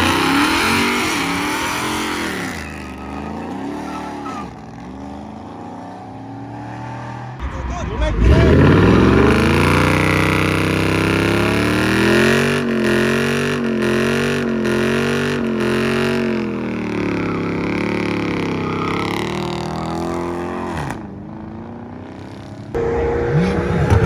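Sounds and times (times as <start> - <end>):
car engine revving high: 0.0 - 21.1, 22.8 - 24.0.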